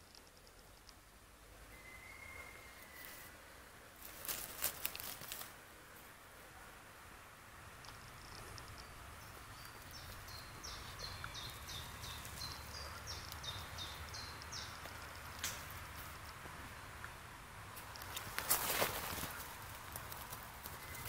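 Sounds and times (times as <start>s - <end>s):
songbird singing high notes: 1.7s - 3.3s.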